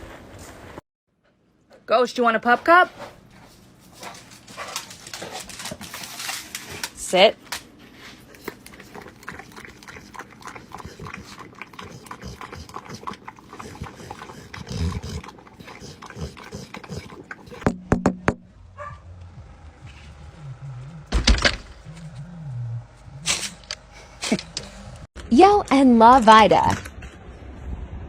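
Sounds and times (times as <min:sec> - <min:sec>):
dog licking and lapping: 0:08.2 - 0:17.6
sharp knocks: 0:17.6 - 0:18.5
low wavering animal sound: 0:18.5 - 0:25.1.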